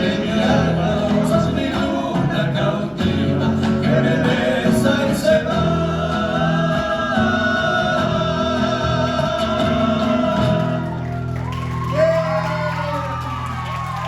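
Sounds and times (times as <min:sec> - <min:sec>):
folk band held chord: 0:00.0 - 0:14.0
crowd shouting and cheering: 0:04.2 - 0:14.0
applause: 0:10.5 - 0:14.0.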